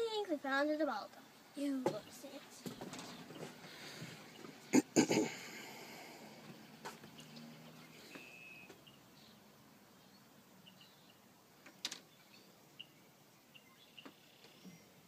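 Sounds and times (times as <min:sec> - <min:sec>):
faint bird chirps: 0:07.0 - 0:11.3, 0:12.1 - 0:15.0.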